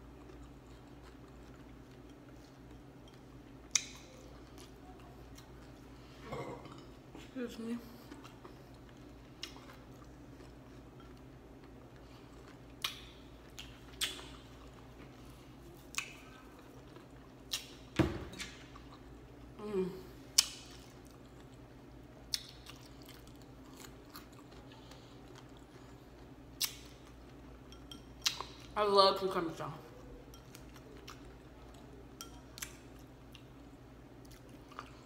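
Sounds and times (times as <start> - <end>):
chewing crunchy pie crust: 0.0 - 6.1, 7.8 - 19.6, 20.3 - 28.8
sharp crunches and mouth clicks: 12.7 - 14.6.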